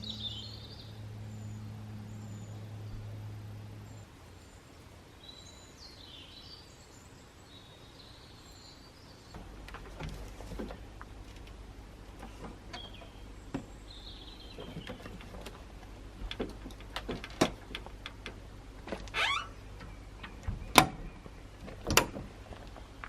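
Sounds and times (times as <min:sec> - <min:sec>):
handling clicks and knocks: 0:09.3 - 0:23.0.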